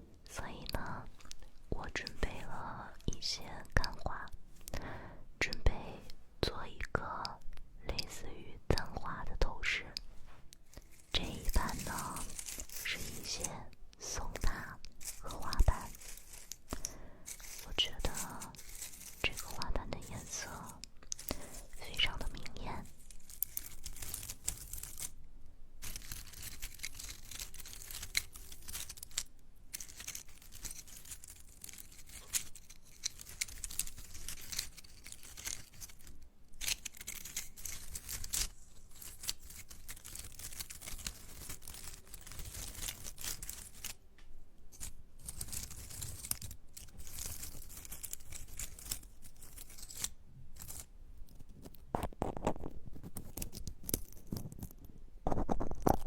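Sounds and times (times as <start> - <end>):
dried plants crackling and rustling: 10.0 - 25.2, 25.8 - 44.0, 44.7 - 50.9.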